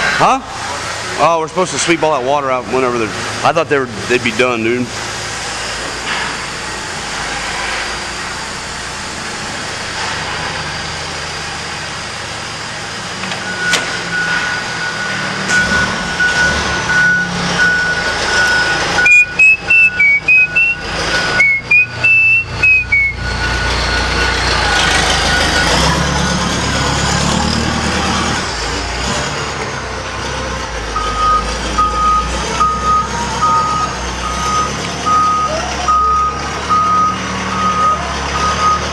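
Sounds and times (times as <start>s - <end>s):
heavy vehicle engine running: 0.0s - 38.9s
backup alarm beeping: 13.4s - 26.0s, 31.0s - 38.9s.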